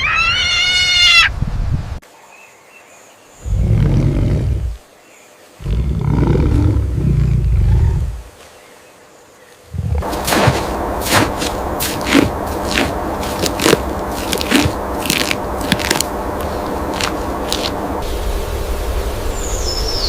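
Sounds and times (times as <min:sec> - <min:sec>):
steady rustling: 0:09.7 - 0:18.1.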